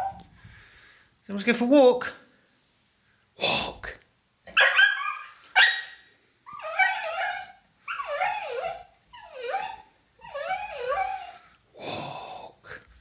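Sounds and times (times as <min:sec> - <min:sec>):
dog yelping: 0:00.0 - 0:00.2, 0:04.5 - 0:11.5
dog whining: 0:00.0 - 0:00.3, 0:04.5 - 0:11.5.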